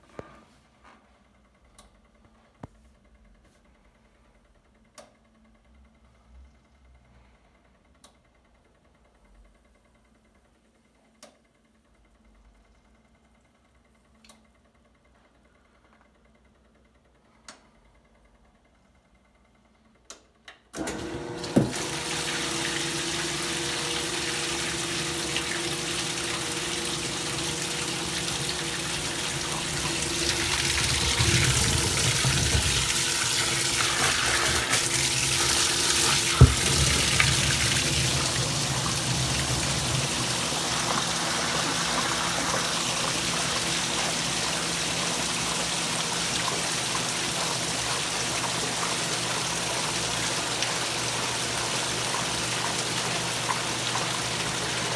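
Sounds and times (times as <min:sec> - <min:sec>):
water running into washing machine: 0:20.8 - 0:54.9.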